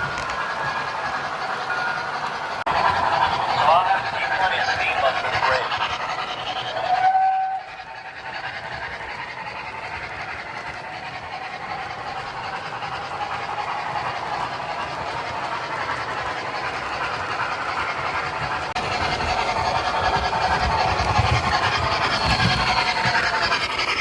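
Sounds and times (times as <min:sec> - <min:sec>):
model train running on track: 0:00.0 - 0:24.0
steam locomotive whistle toot: 0:06.7 - 0:07.9.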